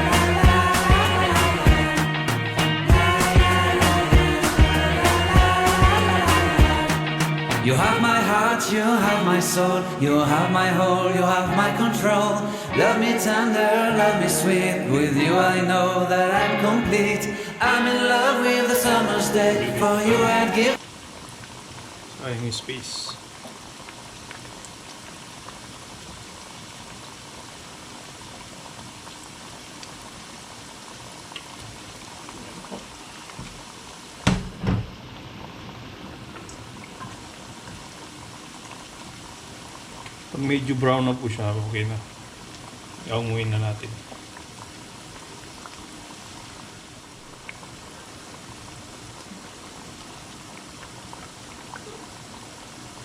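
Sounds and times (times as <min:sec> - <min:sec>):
small crackles: 0:20.8 - 0:27.1, 0:28.3 - 0:34.2, 0:35.1 - 0:40.4, 0:43.8 - 0:53.0
food deep-frying in hot oil: 0:20.8 - 0:53.0.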